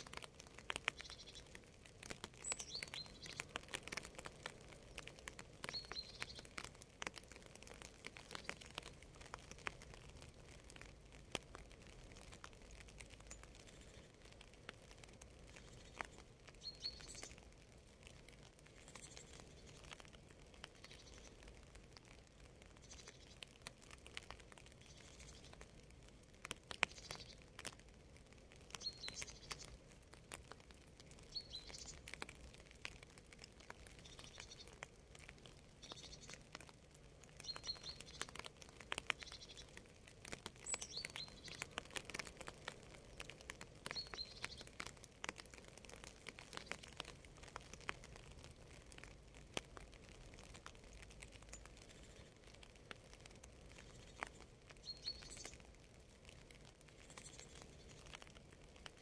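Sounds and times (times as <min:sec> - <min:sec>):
small bird chirping: 0:00.0 - 0:10.2, 0:13.2 - 0:14.4, 0:15.4 - 0:17.5, 0:18.1 - 0:21.6, 0:22.8 - 0:23.6, 0:24.7 - 0:25.7, 0:26.7 - 0:27.4, 0:28.7 - 0:29.8, 0:31.2 - 0:32.2, 0:33.7 - 0:34.9, 0:35.8 - 0:36.6, 0:37.4 - 0:39.8, 0:40.4 - 0:42.4, 0:43.1 - 0:44.9, 0:53.6 - 0:55.7, 0:56.9 - 0:58.2
faint rain drips: 0:00.0 - 0:59.0.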